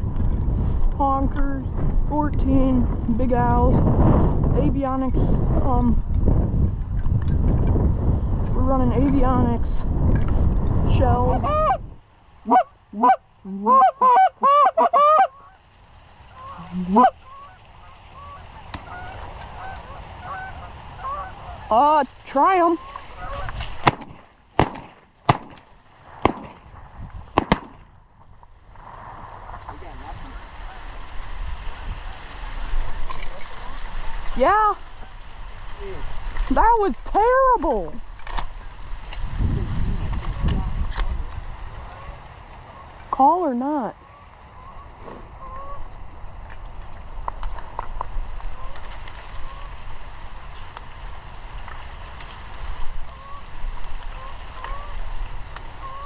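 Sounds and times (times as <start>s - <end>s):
wind rumble on microphone: 0.0s - 13.6s, 15.9s - 56.0s
geese honking: 11.2s - 11.8s, 12.4s - 24.1s, 30.3s - 32.6s, 41.8s - 46.0s, 48.4s - 50.6s, 52.8s - 56.0s
shotgun shots: 23.8s - 27.9s.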